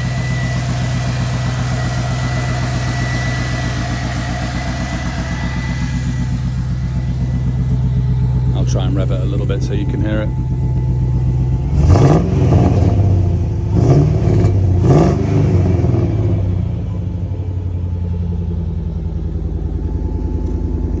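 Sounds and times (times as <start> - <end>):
engine revving and idling: 0.0 - 21.0.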